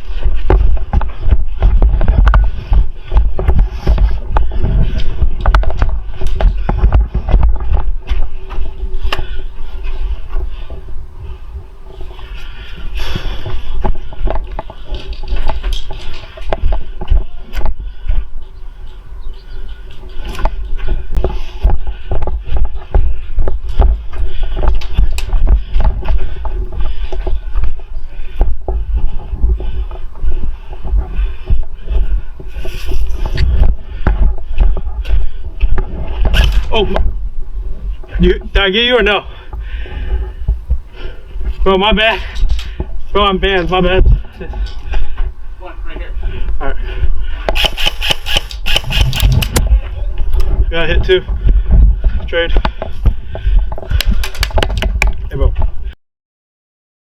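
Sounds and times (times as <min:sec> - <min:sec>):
microphone buffeting and rustling: 0:00.0 - 0:56.0
sharp clicks and knocks: 0:00.2 - 0:09.3, 0:47.4 - 0:49.8, 0:52.6 - 0:55.7.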